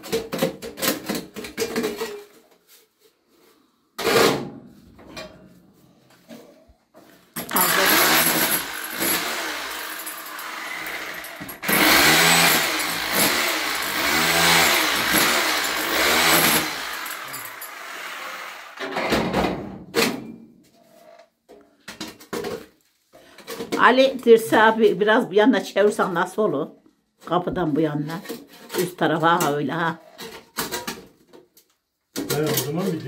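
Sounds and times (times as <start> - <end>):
power tool motor under load: 7.4 - 19.0.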